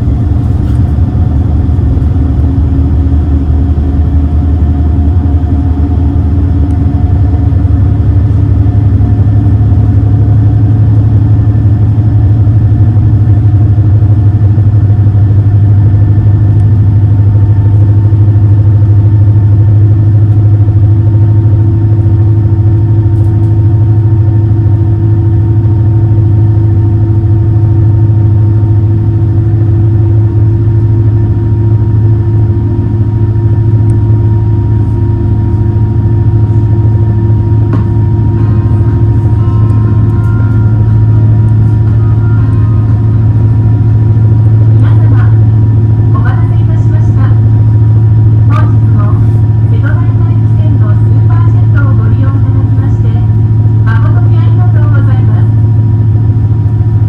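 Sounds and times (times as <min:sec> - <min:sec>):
boat engines droning: 0:00.0 - 0:57.0
faint high whine: 0:33.2 - 0:56.6.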